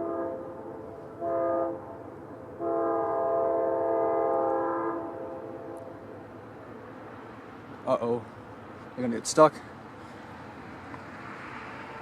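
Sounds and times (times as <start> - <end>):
locomotive air horn blasts: 0.0 - 2.0, 2.6 - 6.0.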